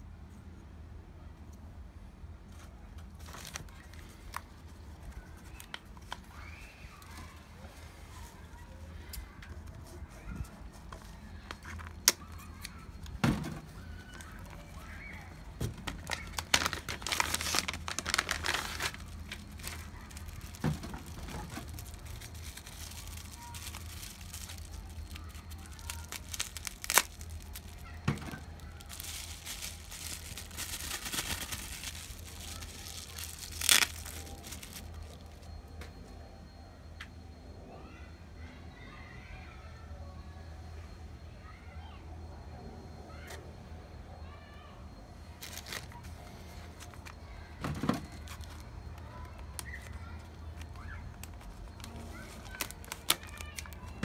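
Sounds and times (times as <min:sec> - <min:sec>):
packaging crinkling: 0:03.1 - 0:07.4, 0:10.5 - 0:35.6, 0:45.4 - 0:54.0.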